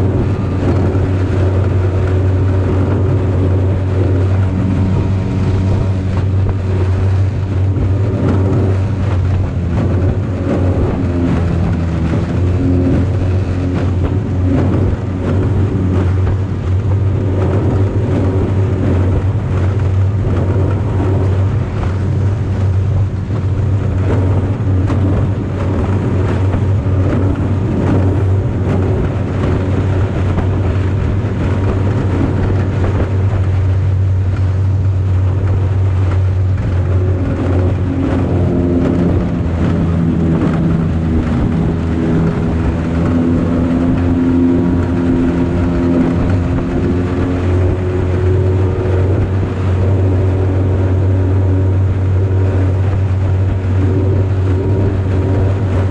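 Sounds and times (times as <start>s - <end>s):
outboard motor drone: 0.0s - 55.9s.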